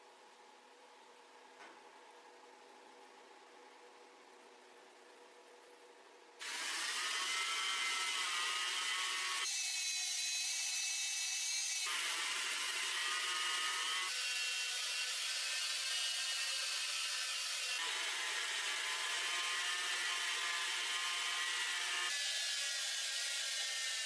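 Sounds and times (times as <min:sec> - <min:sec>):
power tool whining and grinding: 0:06.4 - 0:24.0.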